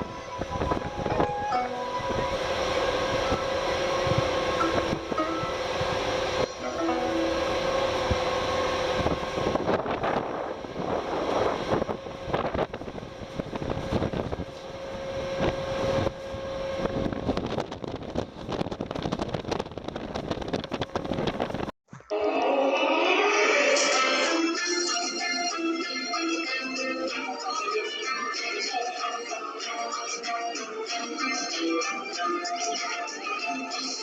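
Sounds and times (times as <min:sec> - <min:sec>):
wind buffeting microphone: 0:00.0 - 0:06.5, 0:07.3 - 0:21.7
ferry engine hum: 0:00.0 - 0:21.7.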